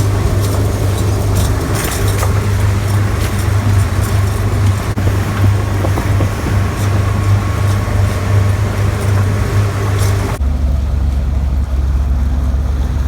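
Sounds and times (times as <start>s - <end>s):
motorboat engine humming: 0.0s - 13.0s.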